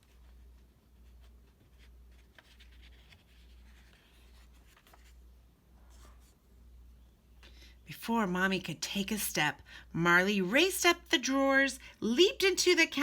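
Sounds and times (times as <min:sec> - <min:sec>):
paper page turning: 0:00.0 - 0:05.2.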